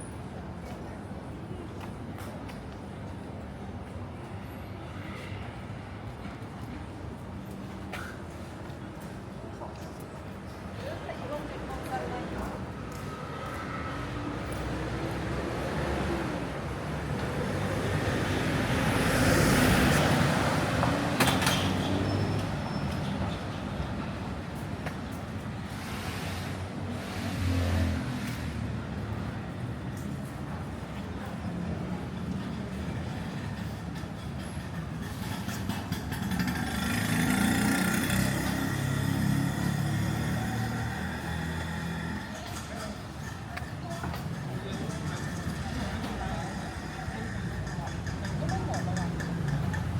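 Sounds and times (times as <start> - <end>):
vehicle engine passing: 35.9 - 42.2.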